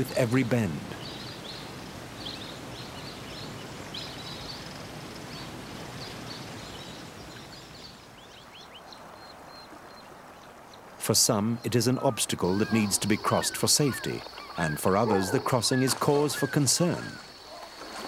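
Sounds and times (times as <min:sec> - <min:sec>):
descending bird chirps: 0:11.6 - 0:17.6
faint high bird chirps: 0:11.6 - 0:17.9.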